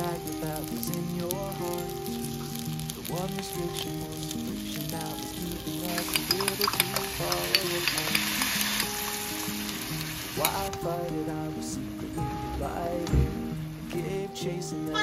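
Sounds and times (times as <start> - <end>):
sauce poured into pan: 0.0 - 10.7
chicken sizzling in hot oil: 0.0 - 10.8.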